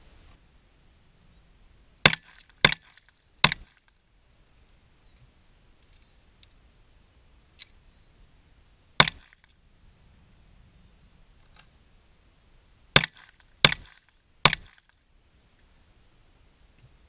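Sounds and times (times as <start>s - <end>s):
pistol shots: 13.0s - 14.8s.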